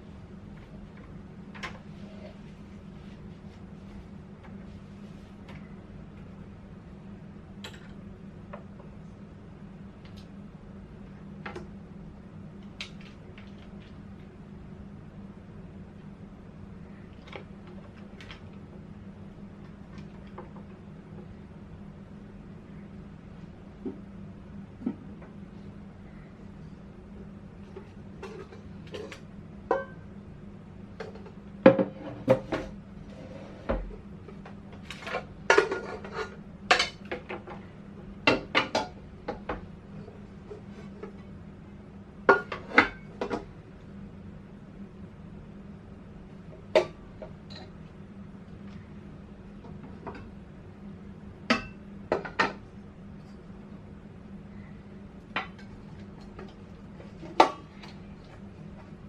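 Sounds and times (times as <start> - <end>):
steady low hum: 0.0 - 59.0
dishes and pots clinking: 28.2 - 30.0, 34.9 - 37.4, 51.5 - 52.6.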